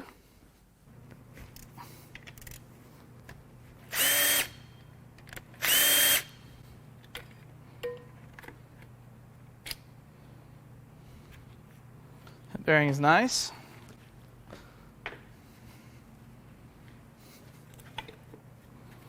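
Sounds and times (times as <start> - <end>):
cordless power tool whining: 3.9 - 4.6, 5.6 - 6.4.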